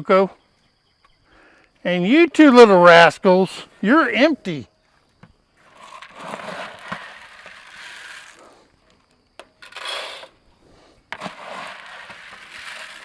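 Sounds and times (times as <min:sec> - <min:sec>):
rustling and scraping of feed: 0:05.6 - 0:13.0.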